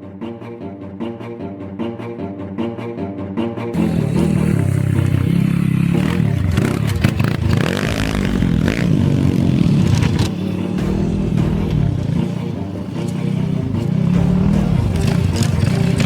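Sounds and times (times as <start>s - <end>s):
motorbike engine revving: 3.8s - 16.0s
rattling noise: 3.8s - 16.0s.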